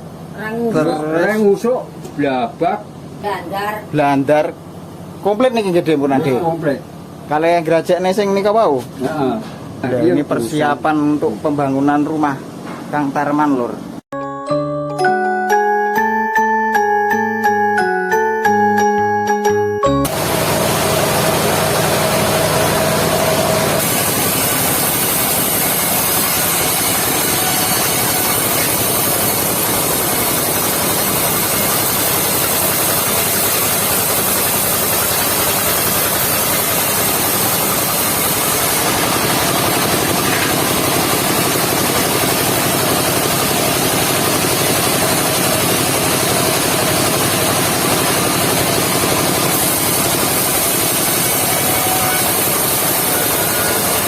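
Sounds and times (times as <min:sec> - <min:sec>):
sawmill engine running: 0:20.0 - 0:54.0.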